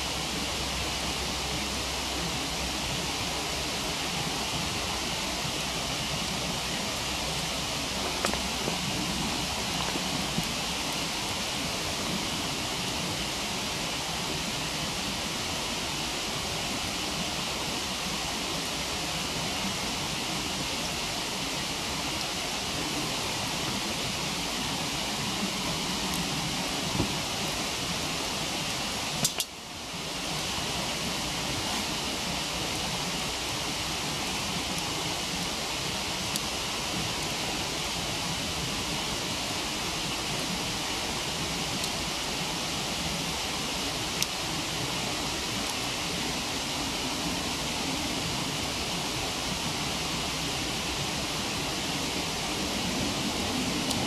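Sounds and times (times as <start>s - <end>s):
waterfall rushing: 0.0s - 54.0s
faint wood fire crack: 5.4s - 13.2s, 21.7s - 29.6s, 34.2s - 38.2s, 40.0s - 43.1s, 43.7s - 46.0s
firewood crackling pops: 8.0s - 10.6s, 29.2s - 29.6s.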